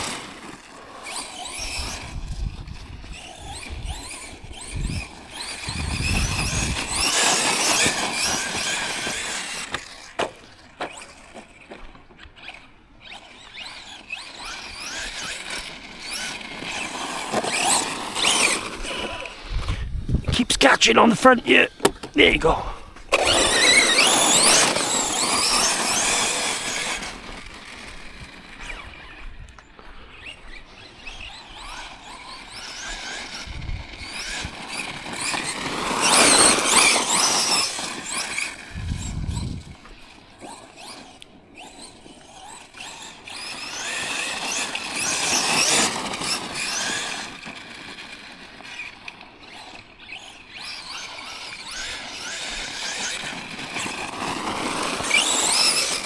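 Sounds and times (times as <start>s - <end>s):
tyres on gravel: 13.5s - 33.3s, 34.0s - 41.4s, 42.0s - 56.0s
electric motor whine: 23.1s - 41.9s.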